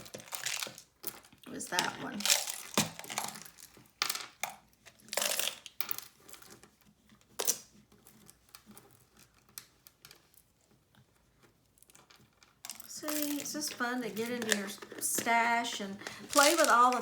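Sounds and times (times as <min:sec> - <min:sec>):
paper rustling: 0:13.0 - 0:17.0.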